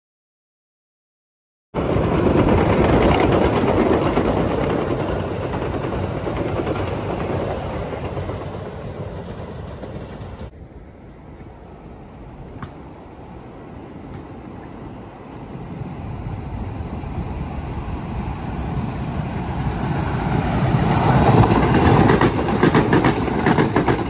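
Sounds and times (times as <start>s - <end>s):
subway train wheels on rail: 1.8s - 24.0s.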